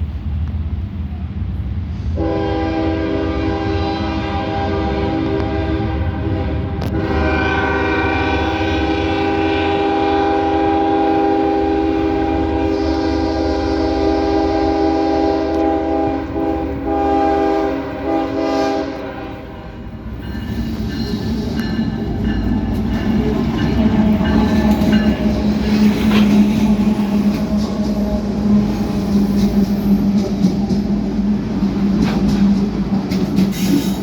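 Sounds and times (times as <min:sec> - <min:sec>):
locomotive air horn: 0:02.2 - 0:20.0
locomotive engine and wheel rumble: 0:19.4 - 0:34.0.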